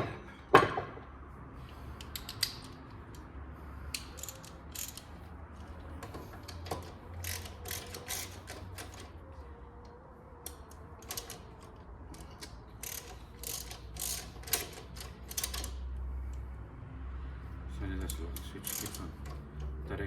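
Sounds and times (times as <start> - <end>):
hand ratchet clicking: 2.0 - 3.3, 3.9 - 5.2, 6.0 - 9.1, 10.4 - 16.4, 18.0 - 19.7.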